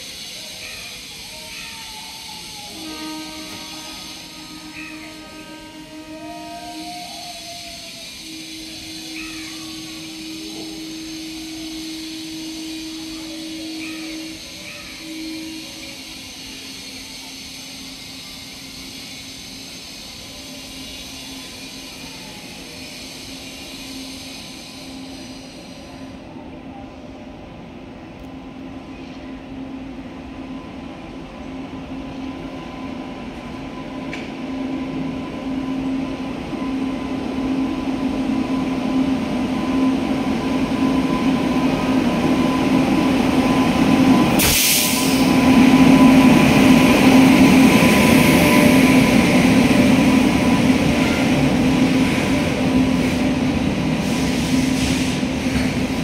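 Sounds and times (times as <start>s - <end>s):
electric locomotive hum: 0.0s - 56.0s
sharp burst of noise: 42.2s - 55.4s.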